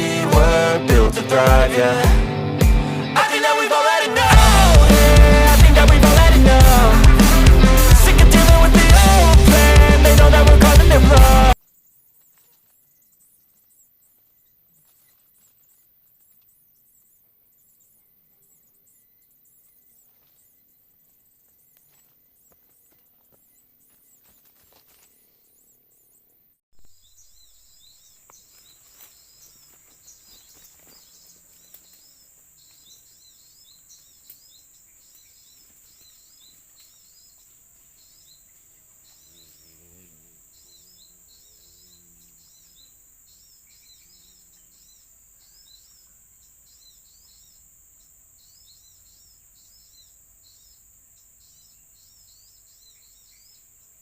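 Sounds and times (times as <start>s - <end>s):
small birds twittering: 11.5s - 54.0s.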